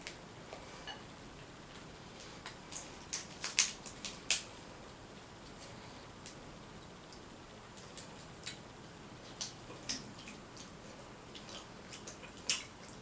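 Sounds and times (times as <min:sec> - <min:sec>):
chewing and shell cracking: 0:01.7 - 0:04.5, 0:09.2 - 0:13.0.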